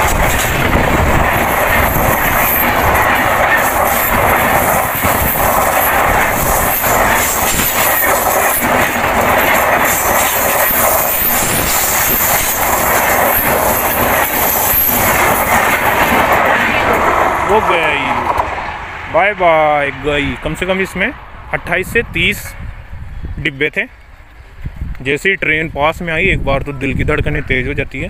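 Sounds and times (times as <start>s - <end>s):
clacks over rail joints: 0.0s - 18.6s
train wheels rumbling on rails: 0.0s - 26.4s.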